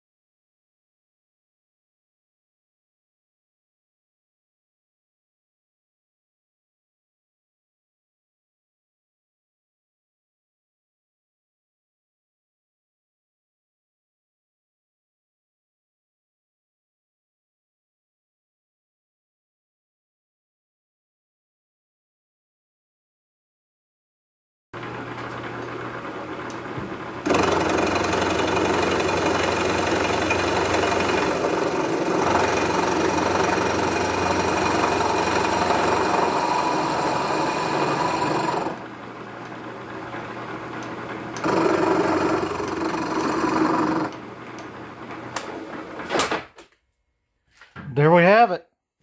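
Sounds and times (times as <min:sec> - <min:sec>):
milling machine motor hum: 0:24.8 - 0:46.0
cutter grinding through metal: 0:27.2 - 0:38.8, 0:41.4 - 0:44.2.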